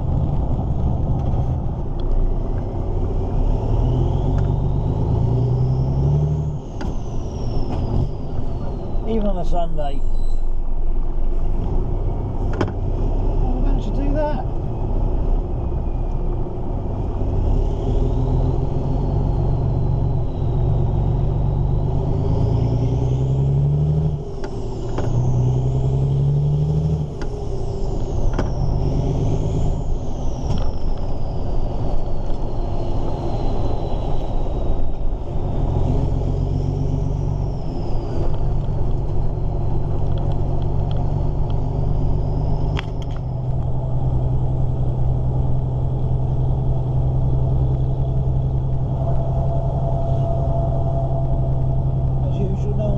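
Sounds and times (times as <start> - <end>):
truck diesel engine revving: 0.0 - 8.8, 16.5 - 30.4, 32.6 - 52.9
turbo whistle: 48.8 - 52.9.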